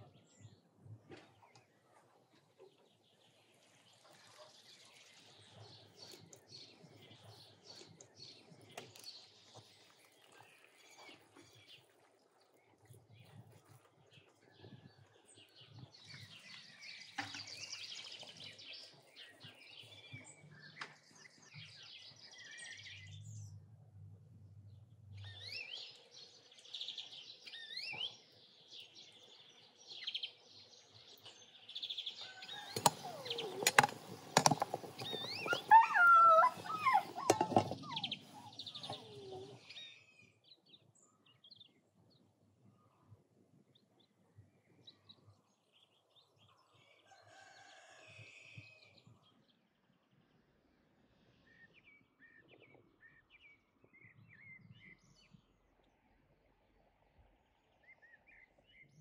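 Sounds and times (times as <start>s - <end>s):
small birds chirping: 2.7s - 23.6s, 25.1s - 41.8s.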